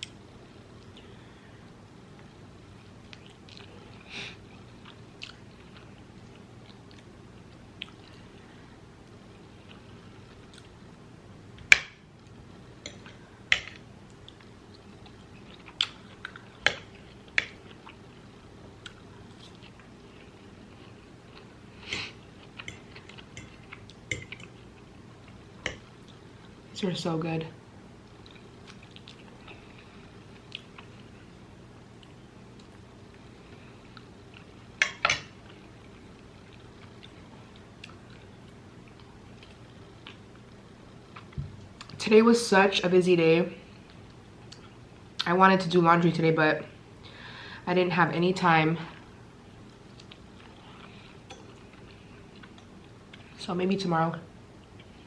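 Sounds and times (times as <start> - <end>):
chewing food: 4.5 - 8.5, 12.9 - 26.6, 28.0 - 31.2, 49.6 - 53.4.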